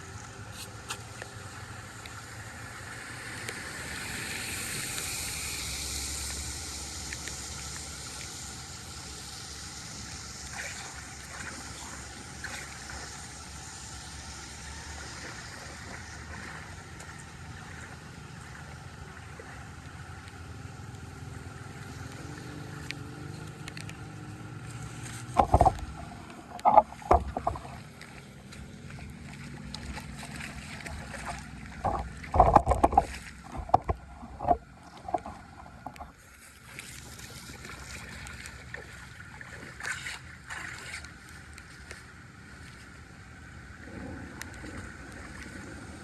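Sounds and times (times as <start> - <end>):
drain water rushing: 1.9 - 41.3
sharp knocks and splashes: 10.4 - 13.4, 14.6 - 19.8, 24.6 - 42.0.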